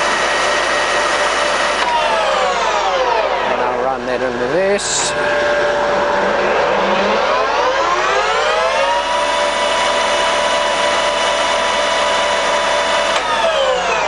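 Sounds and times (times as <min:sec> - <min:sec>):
lathe gear whine: 0:00.0 - 0:14.0.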